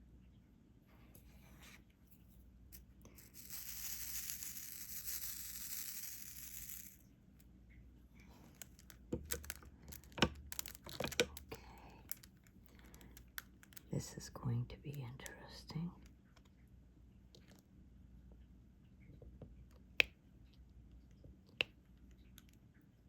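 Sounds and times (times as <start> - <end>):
plastic crinkling: 8.3 - 14.0.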